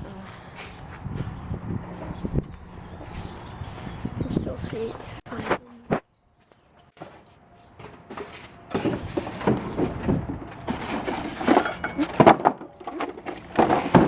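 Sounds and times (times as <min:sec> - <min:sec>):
parts and packaging being handled: 0:06.8 - 0:14.0.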